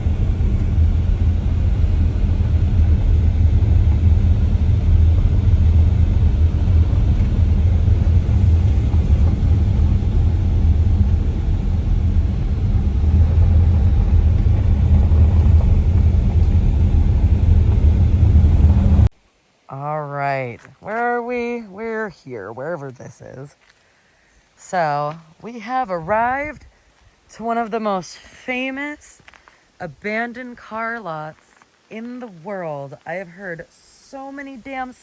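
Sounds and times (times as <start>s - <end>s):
car engine and road noise: 0.0s - 19.1s.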